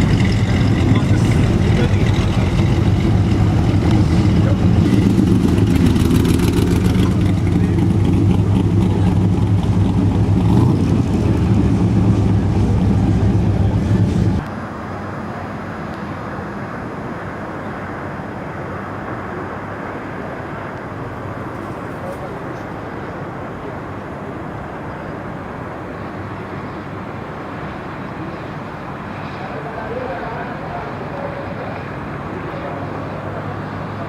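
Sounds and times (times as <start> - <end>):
car engine rumbling: 0.0 - 14.5
steady background noise: 0.0 - 34.0.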